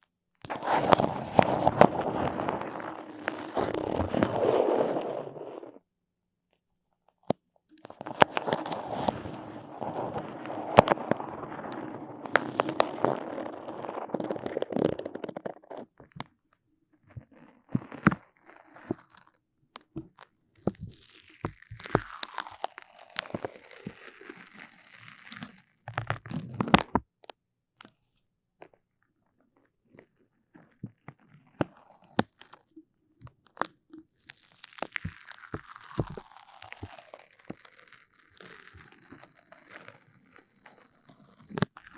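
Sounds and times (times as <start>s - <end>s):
sticky crackling and clicking: 0.5s - 5.8s, 7.8s - 15.8s, 33.3s - 41.9s
drawn-out sound sliding down: 0.6s - 5.8s.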